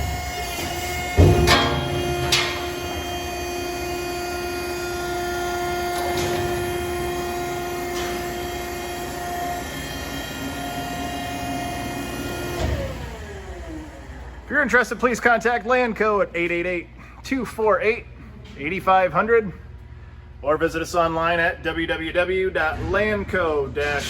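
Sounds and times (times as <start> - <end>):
loud metallic clunks: 0.0 - 8.6
hydraulic motor humming: 0.0 - 15.7.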